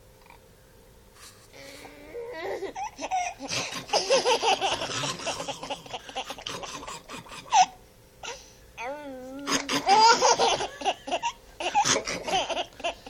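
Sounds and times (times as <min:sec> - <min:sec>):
baby laughing: 0:02.4 - 0:07.8, 0:09.4 - 0:13.0.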